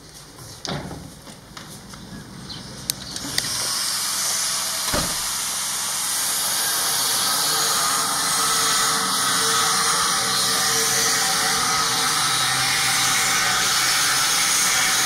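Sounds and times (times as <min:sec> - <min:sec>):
loud steady hiss: 0:03.4 - 0:07.8.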